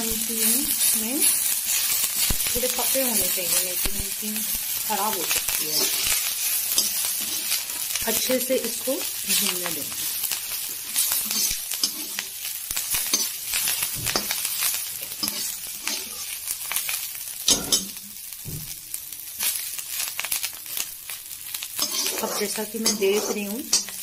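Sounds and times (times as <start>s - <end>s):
spices sizzling in hot oil: 0.0s - 24.0s
steel skimmer scraping a pan: 10.9s - 12.2s, 15.1s - 16.3s, 21.8s - 24.0s.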